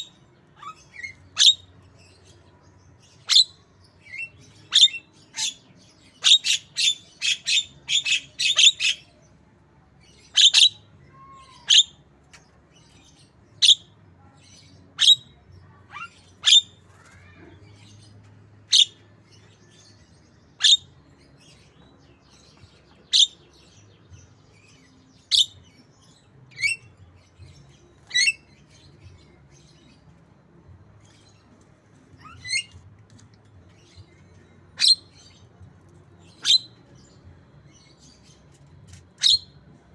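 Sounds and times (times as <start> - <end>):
bird chirping: 0.0 - 9.2, 18.7 - 31.6, 32.2 - 39.8.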